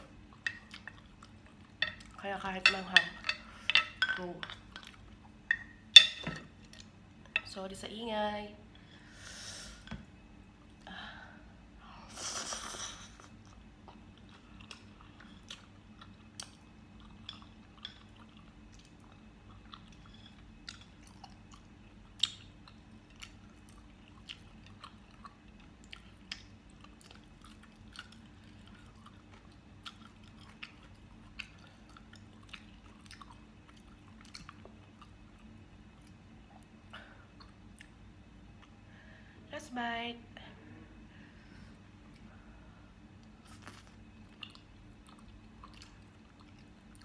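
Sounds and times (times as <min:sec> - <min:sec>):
person chewing food: 0:00.0 - 0:02.2, 0:13.3 - 0:38.8, 0:42.0 - 0:47.0.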